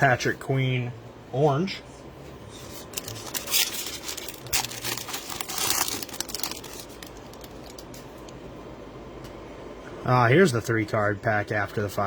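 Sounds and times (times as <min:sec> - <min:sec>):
plastic wrapper crinkling: 0:02.7 - 0:08.4.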